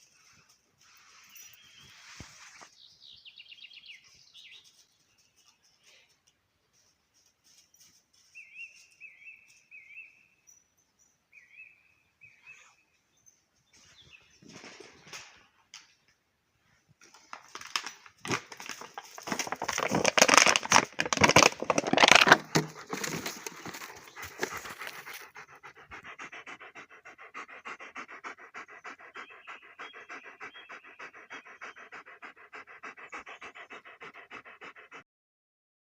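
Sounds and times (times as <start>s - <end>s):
rustling: 0.0s - 2.8s, 17.0s - 25.4s
dog panting: 18.8s - 35.0s
dog huffing: 19.1s - 35.0s.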